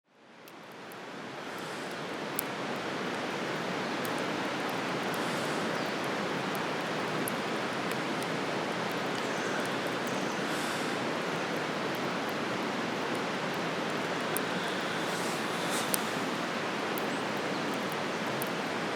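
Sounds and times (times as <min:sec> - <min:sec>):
campfire crackling: 0:00.3 - 0:18.9
steady rushing hiss: 0:03.8 - 0:18.9
sharp pops from fire: 0:14.2 - 0:18.7.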